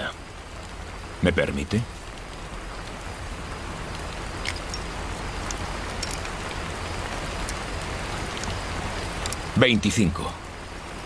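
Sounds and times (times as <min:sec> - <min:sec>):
rain-like hiss: 0:00.0 - 0:11.0
faint sharp ticks: 0:05.4 - 0:06.6.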